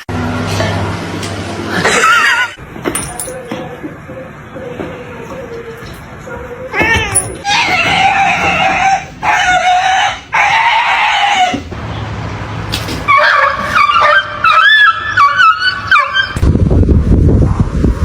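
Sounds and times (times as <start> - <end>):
animal crying: 4.2 - 11.8, 13.1 - 16.4.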